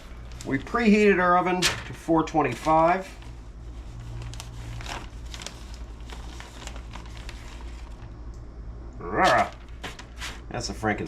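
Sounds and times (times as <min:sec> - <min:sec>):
plastic bag crinkling: 0:00.0 - 0:01.5, 0:02.4 - 0:08.2, 0:09.3 - 0:10.5
low steady hum: 0:00.0 - 0:11.0.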